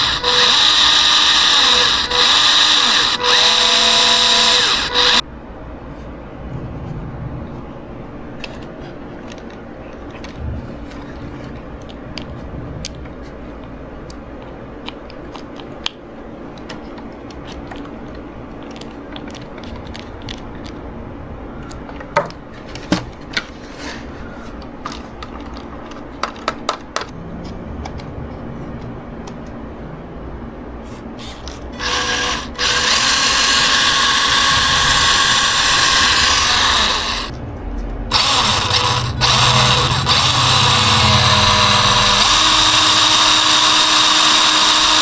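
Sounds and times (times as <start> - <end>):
low hum: 1.6 - 14.8, 31.8 - 44.0
small plastic parts clicking: 14.0 - 20.8, 24.6 - 27.1.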